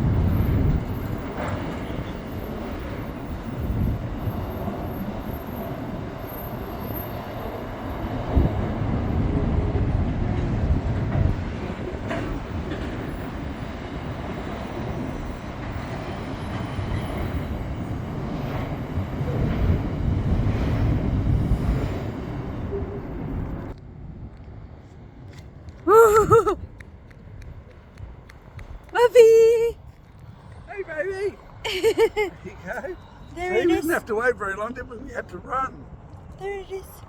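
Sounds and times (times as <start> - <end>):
train wheels rumbling on track: 0.0 - 25.8.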